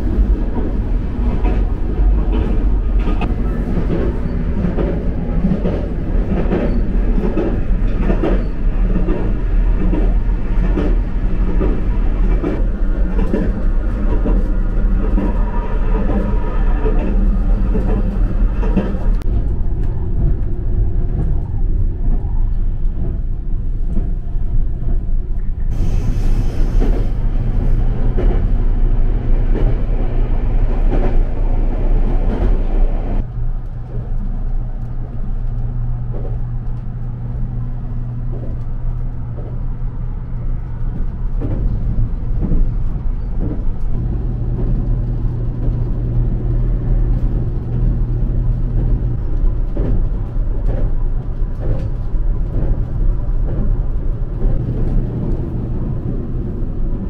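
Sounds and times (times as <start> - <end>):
train running noise: 0.0 - 57.0
hiss: 25.7 - 27.2.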